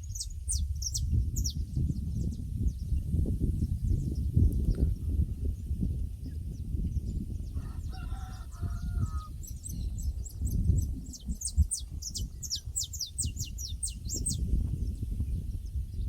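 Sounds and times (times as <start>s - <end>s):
small bird high chirps: 0.0s - 3.0s, 6.9s - 16.0s
wind rumble on microphone: 0.0s - 16.0s.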